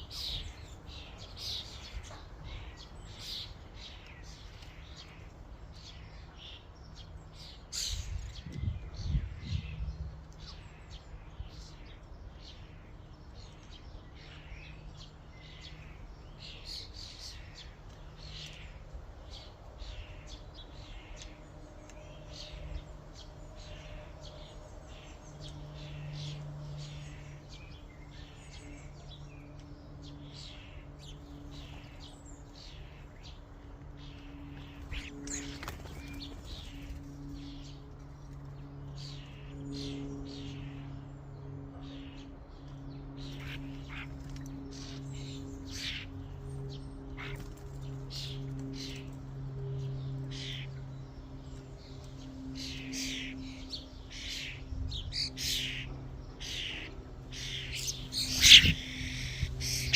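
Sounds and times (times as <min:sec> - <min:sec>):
steady low hum: 0:00.0 - 0:59.9
starlings chirping and whistling: 0:43.2 - 0:59.9.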